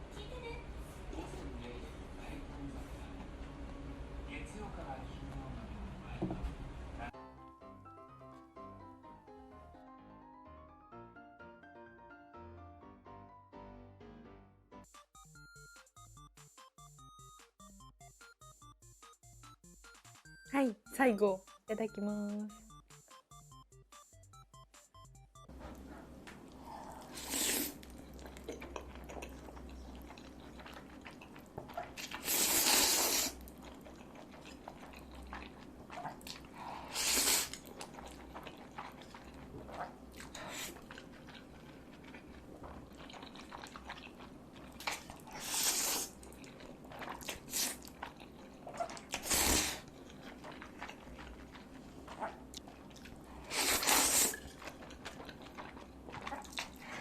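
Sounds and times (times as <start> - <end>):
chewing and mouth sounds: 25.7 - 57.0
bites or slurps: 26.8 - 57.0.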